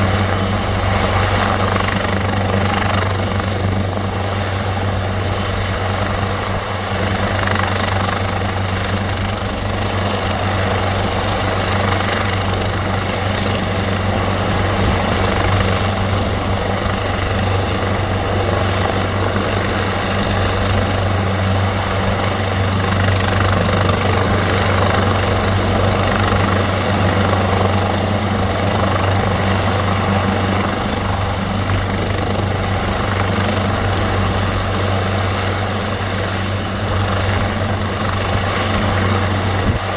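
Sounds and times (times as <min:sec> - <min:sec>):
helicopter rotor drone: 0:00.0 - 0:39.9.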